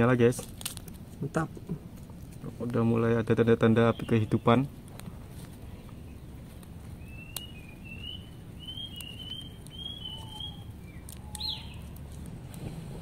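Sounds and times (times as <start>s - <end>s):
low outdoor hum: 0.0s - 13.0s
bird chirping: 3.1s - 4.8s, 5.5s - 12.2s.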